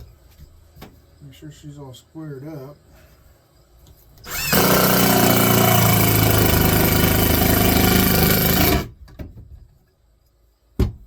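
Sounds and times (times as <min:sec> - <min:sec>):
screw gun driving screw into wood: 0:04.3 - 0:08.9.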